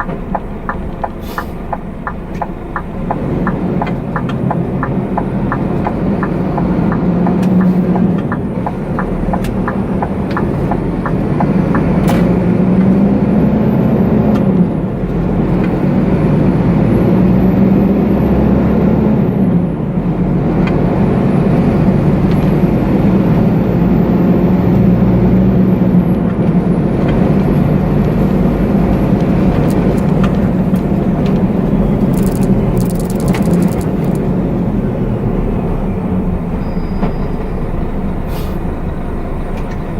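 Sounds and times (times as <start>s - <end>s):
truck engine changing gear: 0.0s - 39.9s
quick regular ticks: 27.4s - 34.3s.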